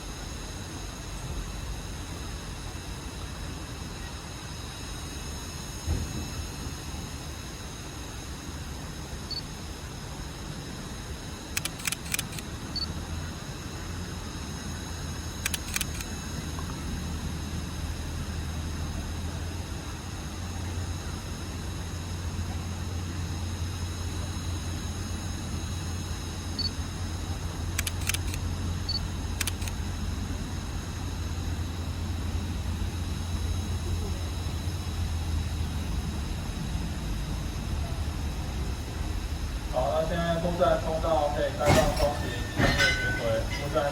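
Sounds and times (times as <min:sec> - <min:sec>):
locomotive drone: 0:00.0 - 0:43.9
sharp clicks: 0:11.5 - 0:12.9, 0:15.4 - 0:16.1, 0:27.8 - 0:28.4, 0:29.4 - 0:29.8
short sharp clicks: 0:11.6 - 0:12.5
train rumbling: 0:35.1 - 0:43.9.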